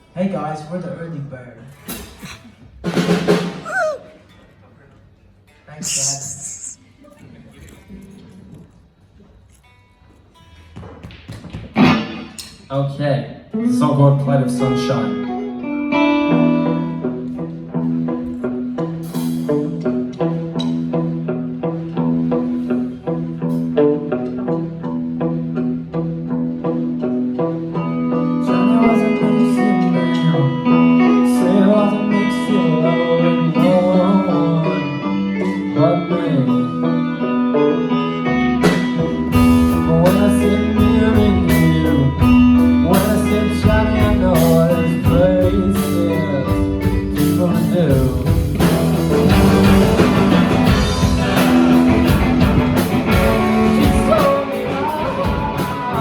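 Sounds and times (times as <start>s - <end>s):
live rock band playing: 2.8s - 4.0s, 5.8s - 6.8s, 11.8s - 12.5s, 14.6s - 56.0s.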